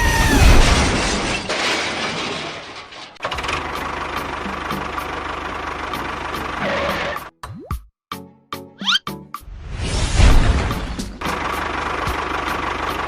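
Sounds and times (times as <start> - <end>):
noisy crash: 0.0 - 3.2, 9.6 - 11.3
engine chugging steadily: 3.3 - 7.2, 11.1 - 13.0.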